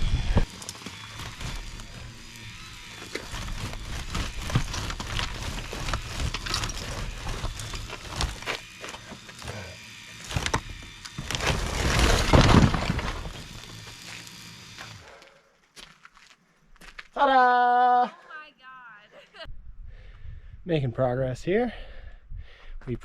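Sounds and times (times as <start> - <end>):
blocks knocking and cracking: 10.3 - 13.6
wall collapsing crash: 11.2 - 13.6.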